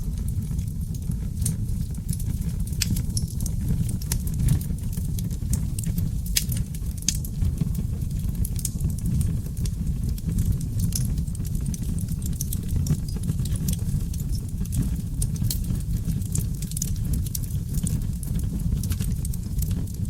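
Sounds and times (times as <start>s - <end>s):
log fire crackling and popping: 0.0s - 20.0s
low rumble of flames: 0.0s - 20.0s.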